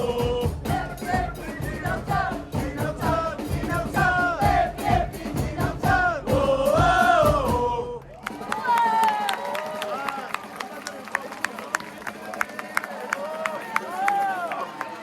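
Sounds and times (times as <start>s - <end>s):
football supporters singing a chant: 0.0s - 8.2s
steady drum beat: 0.0s - 9.3s.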